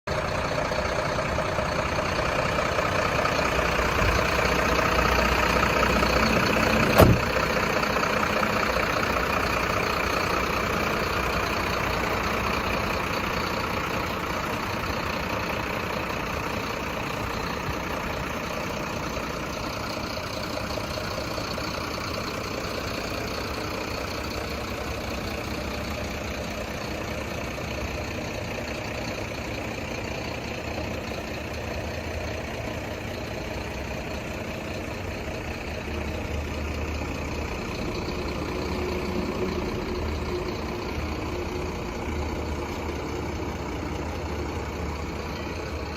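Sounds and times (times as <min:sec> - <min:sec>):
truck engine idling: 0:00.1 - 0:45.9
sharp knock: 0:07.0 - 0:07.2.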